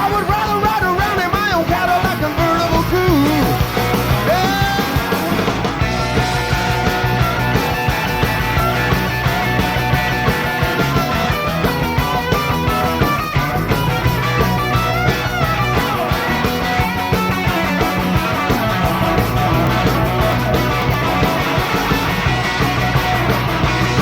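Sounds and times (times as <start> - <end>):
bass guitar: 0.0 - 24.0
drums: 0.0 - 24.0
electric guitars: 0.0 - 24.0.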